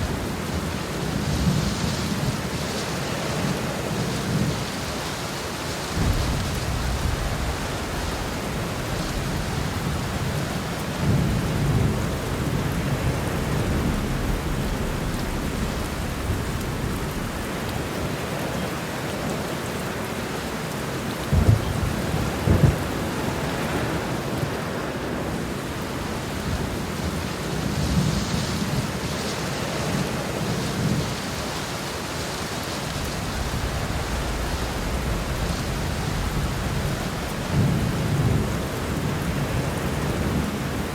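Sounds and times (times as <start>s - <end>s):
heavy rain pouring: 0.0s - 40.9s
thunder rumbling: 5.8s - 19.4s, 21.2s - 25.4s, 33.0s - 40.9s
sharp thunderclaps: 5.9s - 17.8s, 21.3s - 23.1s.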